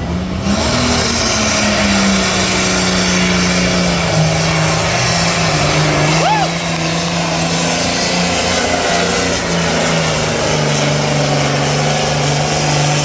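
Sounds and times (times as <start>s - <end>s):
heavy tractor engine running: 0.0s - 13.0s.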